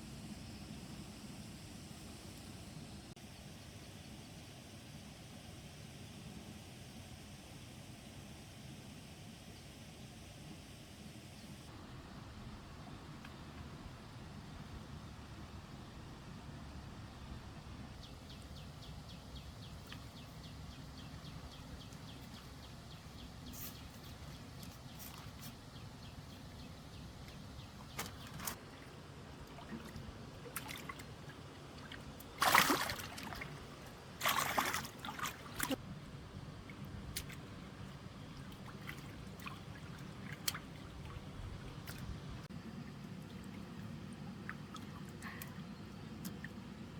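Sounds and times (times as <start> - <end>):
low steady background noise: 0.0 - 46.9
water trickling and sloshing: 19.4 - 46.9
water splashes: 27.8 - 35.9, 36.6 - 46.6.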